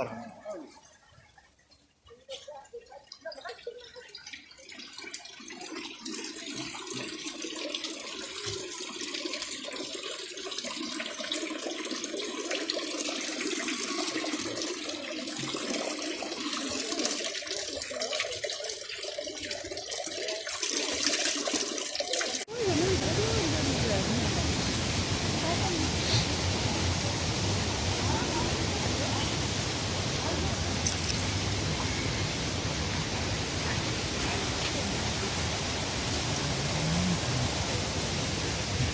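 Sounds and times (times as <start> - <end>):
rushing water cascades: 20.1 - 38.9.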